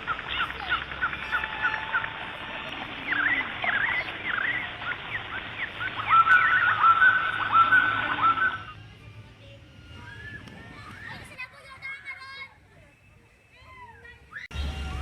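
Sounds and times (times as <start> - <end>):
birds chirping: 0.0 - 15.0
whistled tune: 3.0 - 8.8, 9.8 - 11.4, 12.7 - 15.0.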